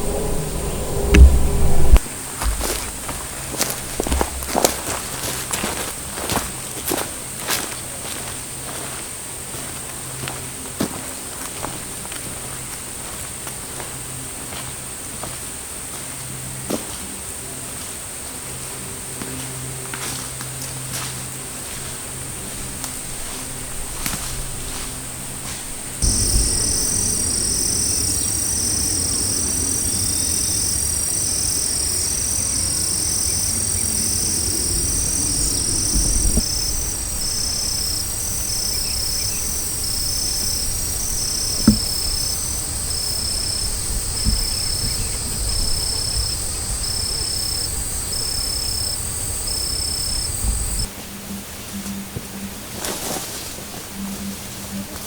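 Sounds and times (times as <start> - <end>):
low rumbling background: 0.0 - 3.3, 25.6 - 50.9
insects chirping: 0.0 - 7.0, 22.1 - 50.9
insect high trill: 26.0 - 50.9.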